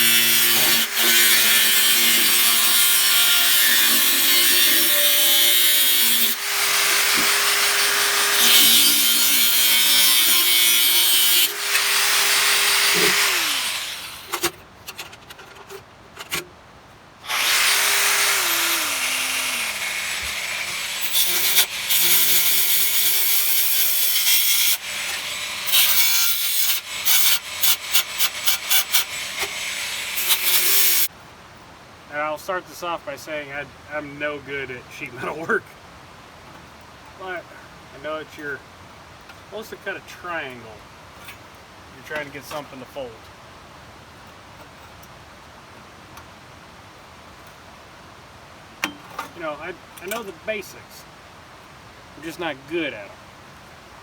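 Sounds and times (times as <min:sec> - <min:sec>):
power tool cutting metal: 0:00.0 - 0:14.5, 0:17.3 - 0:31.1.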